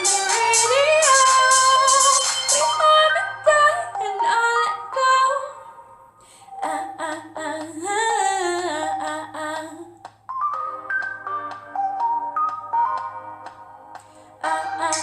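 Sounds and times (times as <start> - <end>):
pop backing track: 0.0 - 5.6, 6.6 - 15.0
woman singing wordless melody: 0.0 - 10.1, 14.3 - 15.0.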